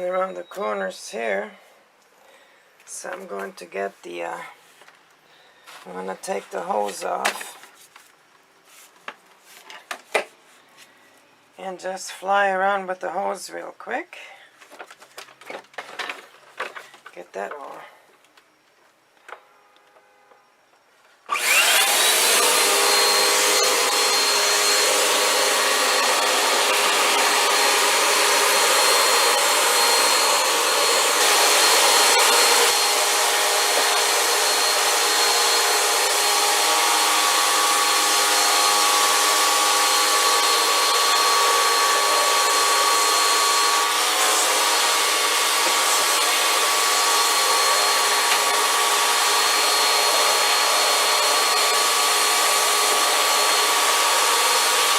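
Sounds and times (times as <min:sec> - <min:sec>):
vacuum cleaner motor running: 0:21.3 - 0:54.9.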